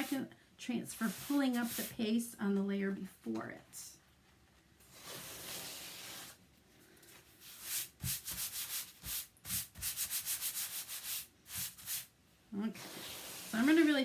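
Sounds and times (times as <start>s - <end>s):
sheet swishing on towel: 1.0s - 2.0s
quick rubbing strokes on cloth: 7.4s - 12.1s.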